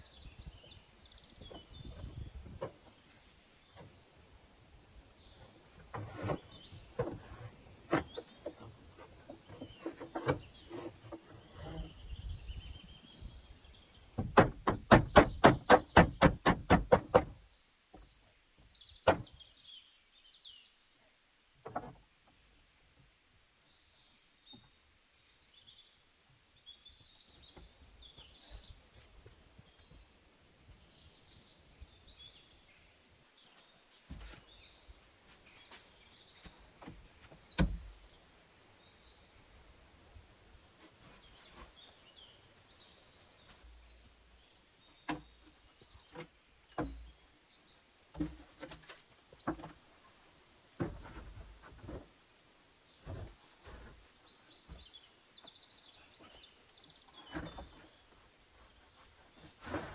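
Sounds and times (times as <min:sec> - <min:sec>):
birds chirping: 0:00.0 - 0:21.0, 0:40.8 - 0:59.9
sharp knocks: 0:14.2 - 0:17.4.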